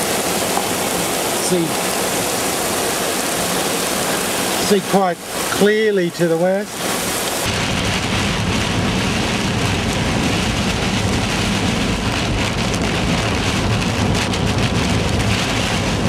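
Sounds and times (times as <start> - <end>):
rain ticking on a car: 0.0 - 16.0
road and engine rumble: 0.0 - 16.0.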